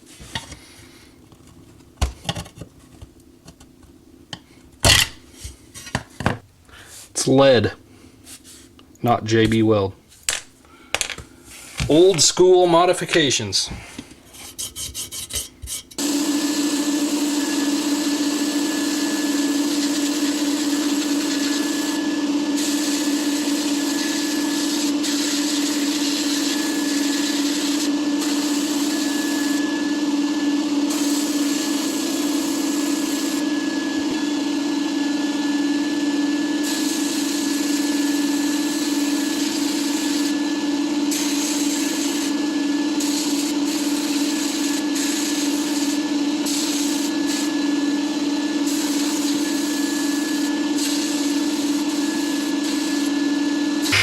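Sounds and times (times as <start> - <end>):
power tool motor humming: 16.0 - 54.0.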